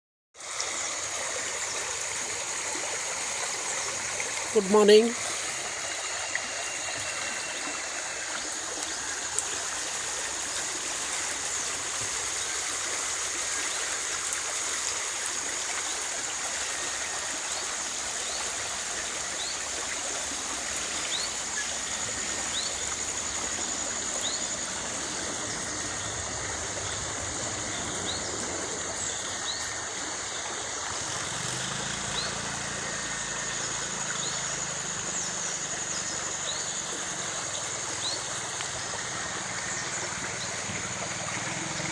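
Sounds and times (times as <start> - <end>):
water flowing in a stream: 0.4 - 41.9
faint low engine hum: 15.0 - 41.9.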